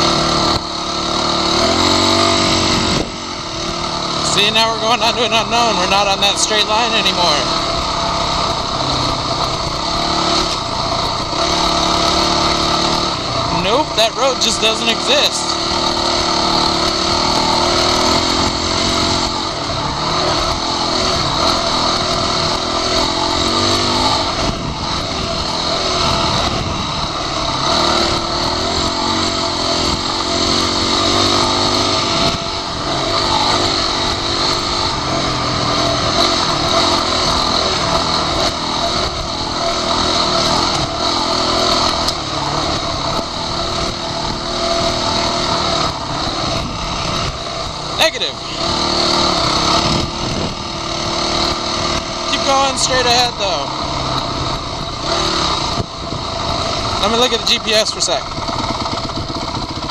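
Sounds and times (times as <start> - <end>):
motorcycle engine revving: 0.0 - 59.9
wind rush on microphone: 2.7 - 3.8, 24.3 - 27.4, 46.4 - 47.8, 49.7 - 51.0, 54.5 - 56.8, 58.2 - 59.9.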